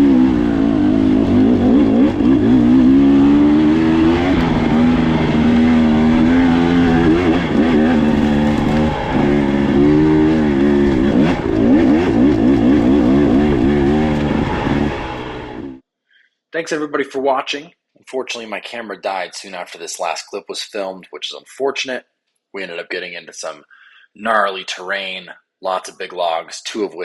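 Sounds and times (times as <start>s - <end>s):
dirt bike engine revving: 0.0s - 15.8s.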